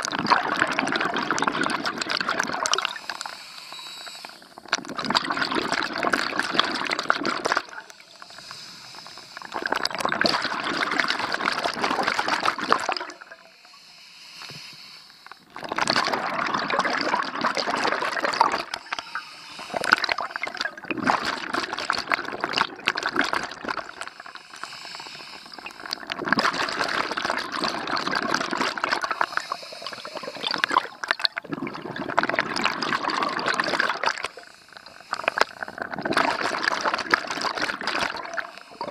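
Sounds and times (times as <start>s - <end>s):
underwater exhaled breath bubbling: 0.0s - 38.9s.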